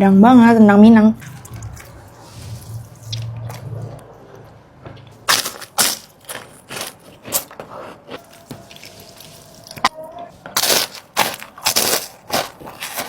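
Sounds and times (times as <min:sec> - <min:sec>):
crunchy food being chewed: 0:05.3 - 0:09.8, 0:10.6 - 0:13.0.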